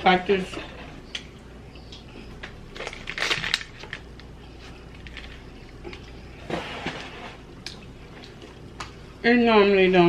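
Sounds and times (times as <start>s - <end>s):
food packaging crackling: 2.4s - 6.3s.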